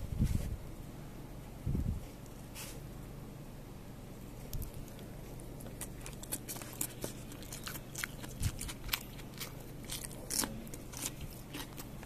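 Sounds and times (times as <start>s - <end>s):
steady low hum: 0.0s - 12.0s
crunchy chewing: 4.2s - 12.0s.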